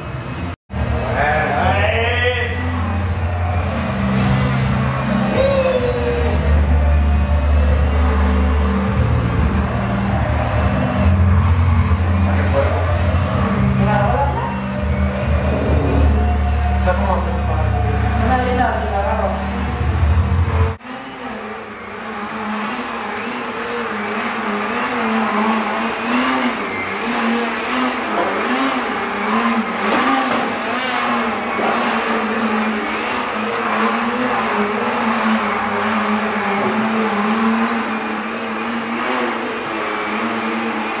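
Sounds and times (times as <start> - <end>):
model airplane engine: 20.7 - 41.0.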